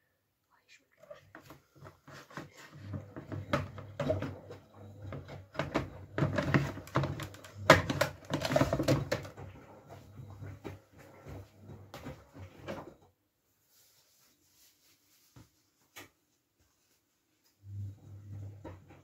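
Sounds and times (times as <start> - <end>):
washing machine motor hum: 1.4 - 13.0, 17.6 - 19.0.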